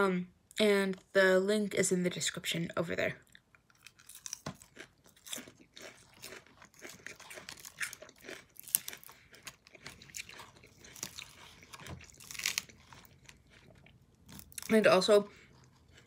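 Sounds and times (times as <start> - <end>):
chewing crisp lettuce: 3.2 - 16.0.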